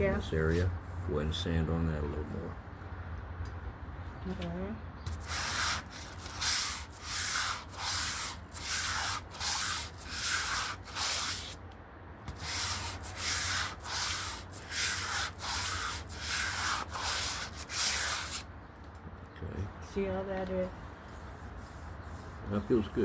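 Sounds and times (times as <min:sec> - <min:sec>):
sandpaper rubbing back and forth: 0:05.1 - 0:11.6, 0:12.3 - 0:18.5, 0:21.1 - 0:23.0.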